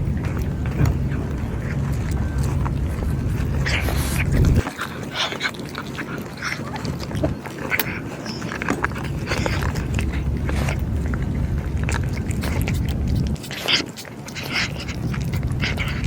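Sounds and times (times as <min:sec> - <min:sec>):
cats crunching and chewing: 0:00.0 - 0:16.0.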